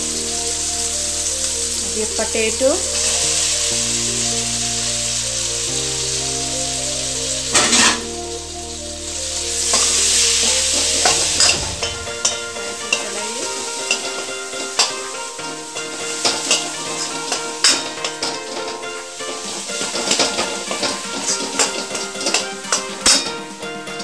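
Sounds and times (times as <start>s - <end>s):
background music: 0.0s - 24.0s
potatoes sizzling in hot oil: 0.0s - 24.0s
metal spoon scraping pan: 16.2s - 23.4s.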